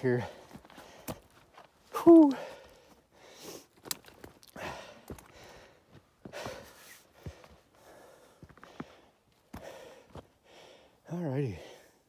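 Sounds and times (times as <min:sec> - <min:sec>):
man breathing hard: 0:04.5 - 0:11.0.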